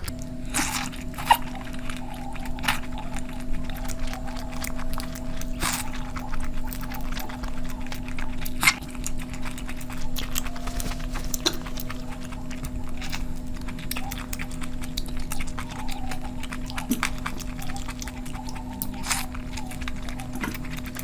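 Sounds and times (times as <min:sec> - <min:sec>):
person chewing and smacking food: 0:00.0 - 0:21.0
steady low hum: 0:00.0 - 0:21.0.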